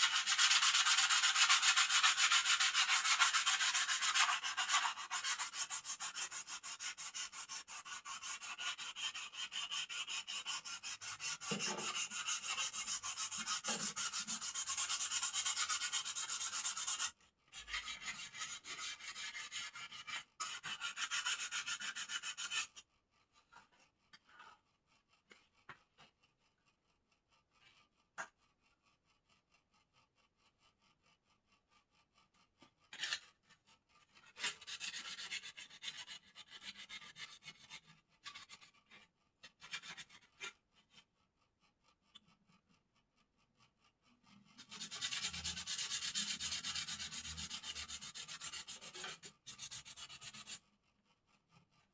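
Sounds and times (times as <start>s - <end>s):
sandpaper scraping: 0.0s - 17.1s, 44.6s - 50.6s.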